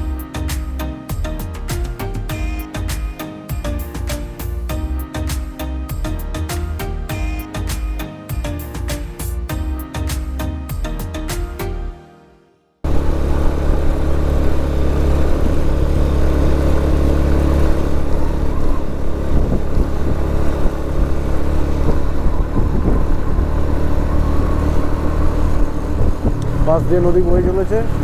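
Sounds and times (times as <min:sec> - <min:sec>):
motorcycle engine running: 0:12.9 - 0:28.0.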